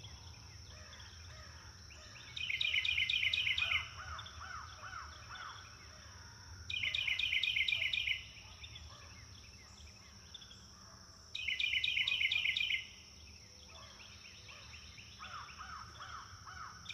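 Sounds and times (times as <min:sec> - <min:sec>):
faint bird calls: 0:13.6 - 0:16.9.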